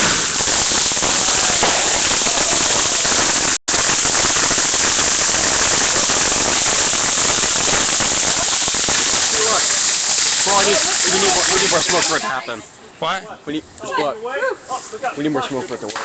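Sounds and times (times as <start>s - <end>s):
firework fountain hissing and crackling: 0.0s - 12.4s.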